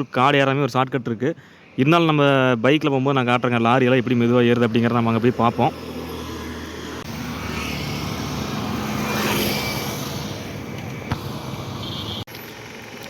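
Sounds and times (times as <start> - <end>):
vehicle passing close by: 5.0 - 12.2.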